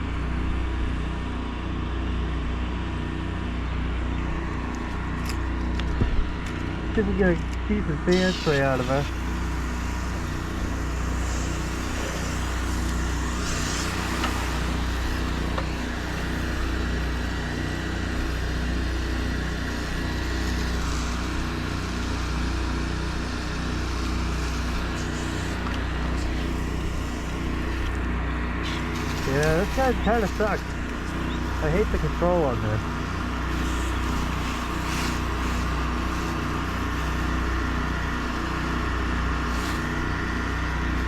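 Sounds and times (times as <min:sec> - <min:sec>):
pressure washer engine running: 0:00.0 - 0:41.0
high-pressure spray hissing: 0:08.0 - 0:28.0, 0:28.6 - 0:41.0.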